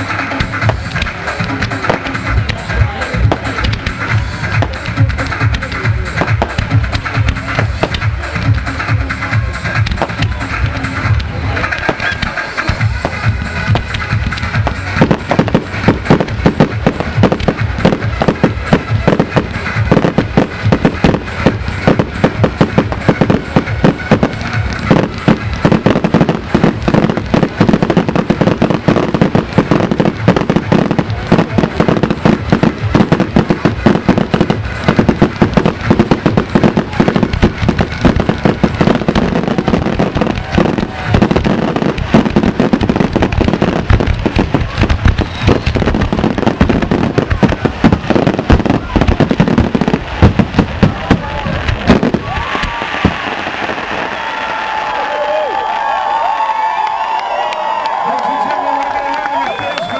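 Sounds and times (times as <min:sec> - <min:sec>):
distant fireworks barrage: 0:00.0 - 0:59.9.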